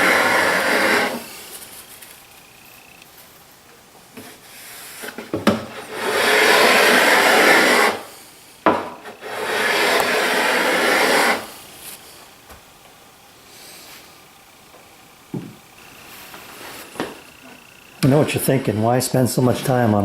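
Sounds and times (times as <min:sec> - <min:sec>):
hand plane shaving wood: 0:00.0 - 0:01.7, 0:04.2 - 0:08.1, 0:09.0 - 0:12.0, 0:15.9 - 0:20.0.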